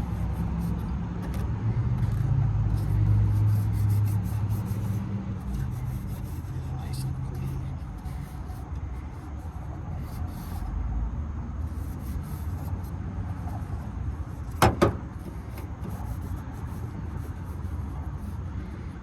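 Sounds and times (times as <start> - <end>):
plastic cap rubbing and ticking: 0.0 - 10.7, 11.7 - 19.0
sharp knocks: 14.6 - 15.1.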